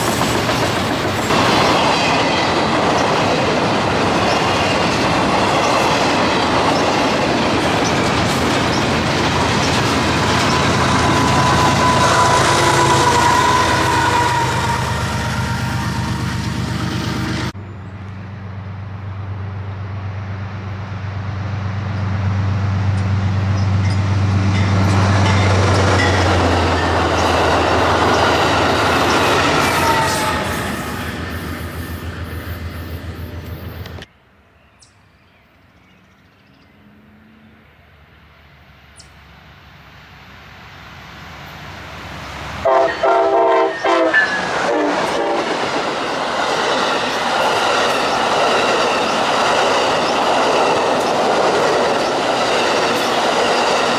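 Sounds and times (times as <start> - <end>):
diesel locomotive engine humming: 0.0 - 34.1, 37.4 - 53.9
train wheel and rail noise: 0.0 - 53.9
multi-note train air horn: 10.5 - 17.5, 27.8 - 31.2, 42.6 - 45.5.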